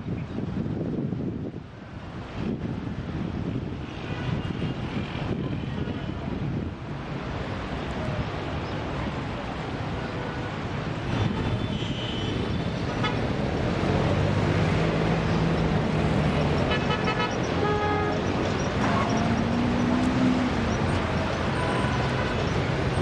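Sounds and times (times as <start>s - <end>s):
street traffic rushing: 0.0s - 23.0s
car horns: 10.3s - 13.3s, 16.6s - 23.0s.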